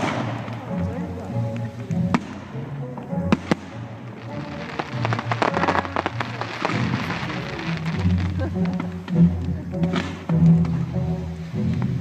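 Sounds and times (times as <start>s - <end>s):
fireworks banging: 0.0s - 12.0s
fireworks crackling: 0.0s - 12.0s
music playing: 0.0s - 12.0s.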